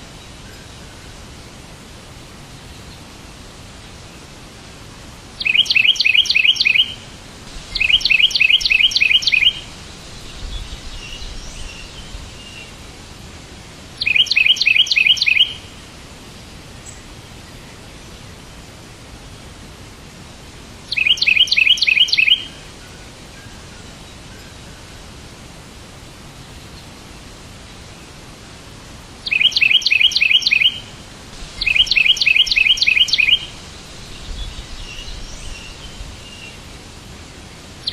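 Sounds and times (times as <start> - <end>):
steady background hiss: 0.0 - 37.9
faint bird twittering: 5.4 - 7.0, 7.7 - 12.8, 14.0 - 15.7, 20.9 - 24.6, 29.2 - 30.9, 31.5 - 36.7, 37.6 - 37.9
songbird chirping: 5.4 - 12.8, 13.8 - 15.8, 20.9 - 25.1, 26.3 - 37.9.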